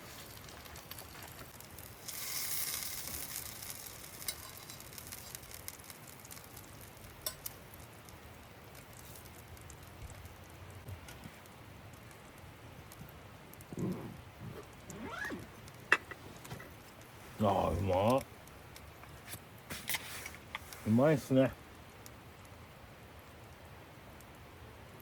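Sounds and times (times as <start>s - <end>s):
food sizzling on a grill: 0.0s - 9.9s, 19.3s - 21.4s
sharp crackles: 0.0s - 22.6s.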